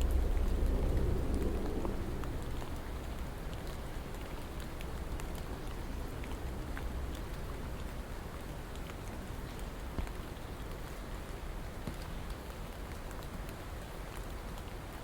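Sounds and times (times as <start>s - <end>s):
low rumble: 0.0s - 4.6s
raindrops ticking on a surface: 0.0s - 15.0s
steady rain: 0.0s - 15.0s.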